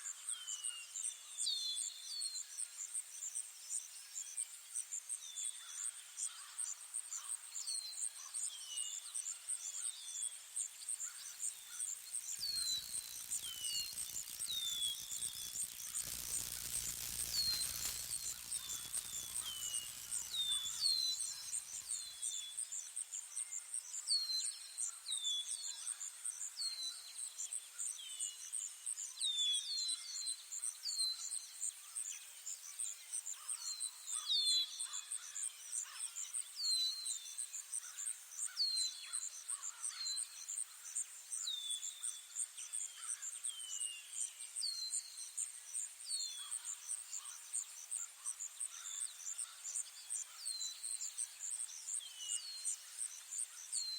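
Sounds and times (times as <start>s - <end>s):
bird chirping: 11.3s - 22.4s
insect trilling: 11.8s - 21.9s.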